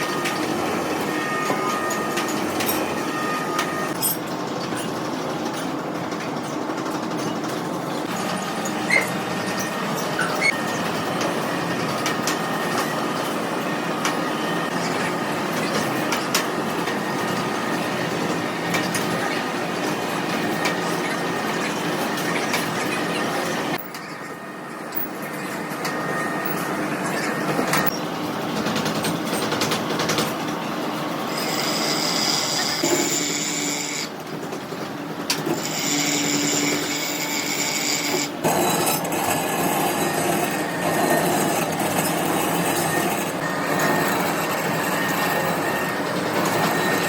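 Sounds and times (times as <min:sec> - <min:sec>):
machinery metallic clatter: 0:00.0 - 0:47.0
steady machine tones: 0:35.6 - 0:47.0.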